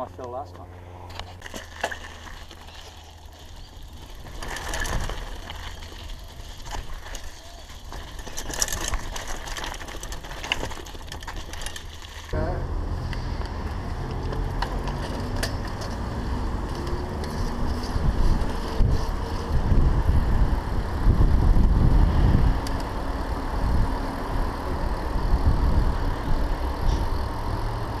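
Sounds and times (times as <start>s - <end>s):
bike clicks and rattles: 1.0s - 12.4s, 13.1s - 28.0s
wind rumble on microphone: 12.3s - 28.0s.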